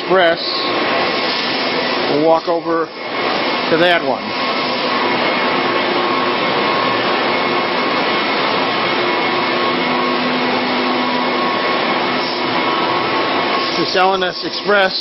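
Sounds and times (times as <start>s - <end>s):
shop machinery running: 0.0s - 15.0s.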